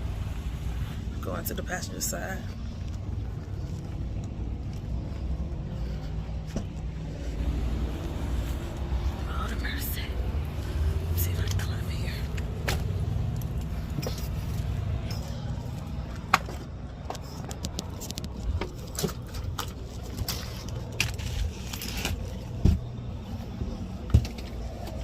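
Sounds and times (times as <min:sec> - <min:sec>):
diesel truck engine idling: 0:00.0 - 0:21.6.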